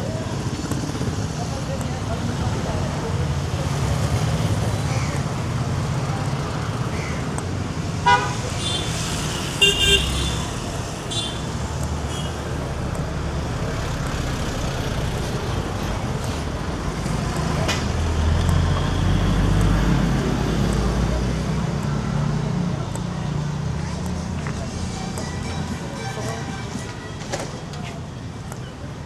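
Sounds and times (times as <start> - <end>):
passing motor vehicles rumbling: 0.0 - 29.0
vehicle horn beeps: 8.0 - 11.5, 25.2 - 27.5.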